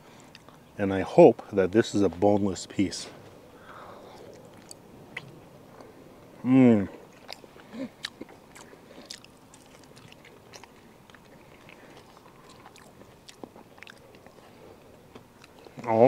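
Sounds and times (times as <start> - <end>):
person chewing: 0.2 - 0.6, 4.0 - 6.0, 6.9 - 15.9.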